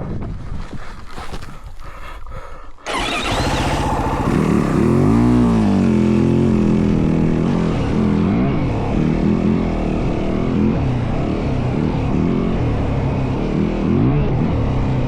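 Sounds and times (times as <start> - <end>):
dirt bike engine revving: 2.9 - 8.4.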